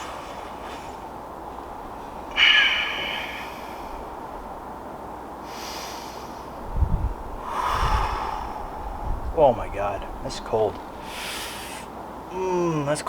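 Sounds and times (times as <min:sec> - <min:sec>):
steady hiss: 0:00.0 - 0:13.0
person exhaling sharply: 0:02.3 - 0:04.1, 0:07.4 - 0:08.9, 0:11.1 - 0:11.9.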